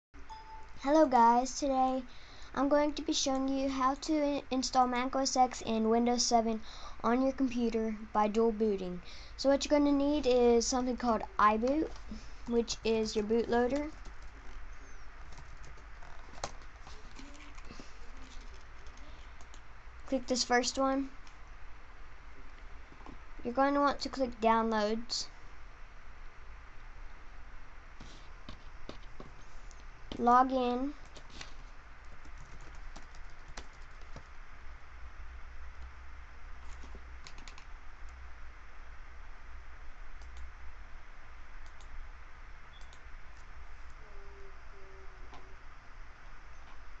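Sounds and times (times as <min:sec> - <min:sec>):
low electrical hum: 0:00.2 - 0:47.0.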